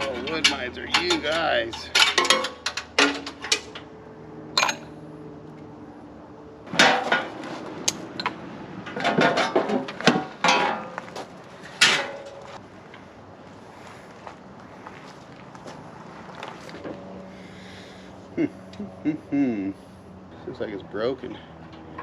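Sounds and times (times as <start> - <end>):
hand tools clanking on sheet metal: 0.0 - 3.9, 6.7 - 12.6.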